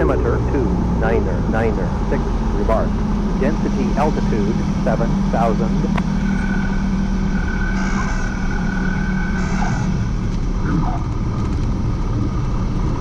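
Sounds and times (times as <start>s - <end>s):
thin steady whine: 0.0s - 10.4s
airplane engine and propeller drone: 0.0s - 13.0s.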